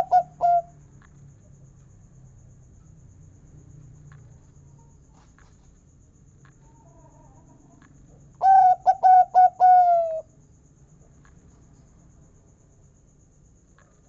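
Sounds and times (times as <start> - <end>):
dove cooing song: 0.0 - 0.7, 8.4 - 10.3.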